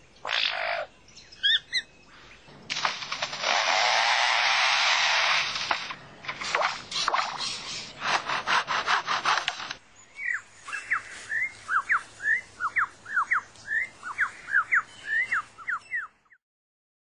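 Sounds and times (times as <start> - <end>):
bird mimicking chainsaw rasping: 2.7 - 9.8
downward sliding bird whistles: 6.7 - 8.0.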